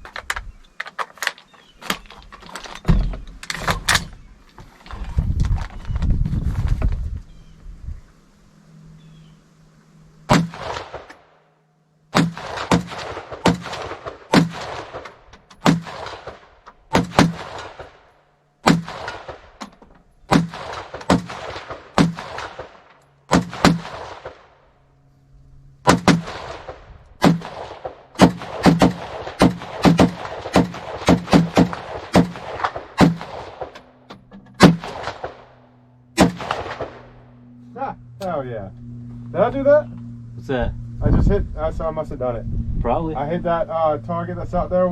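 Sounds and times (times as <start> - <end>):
rifle shots with echo: 10.3 - 11.4, 12.1 - 19.6, 20.3 - 24.6, 25.8 - 34.0, 34.6 - 37.3.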